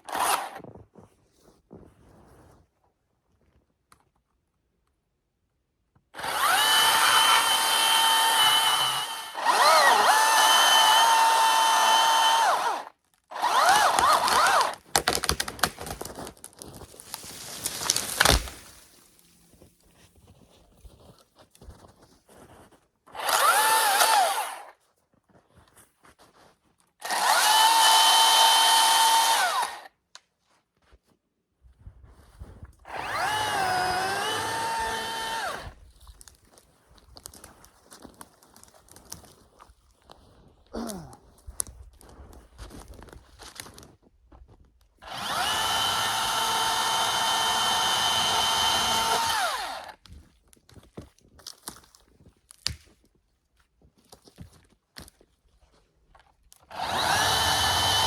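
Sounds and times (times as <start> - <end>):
chainsaw cutting: 0.0 - 0.6, 6.2 - 15.7, 17.4 - 18.8, 23.1 - 24.7, 27.0 - 29.9, 32.9 - 35.8, 45.0 - 50.0, 56.6 - 58.0
crackling: 14.0 - 19.3.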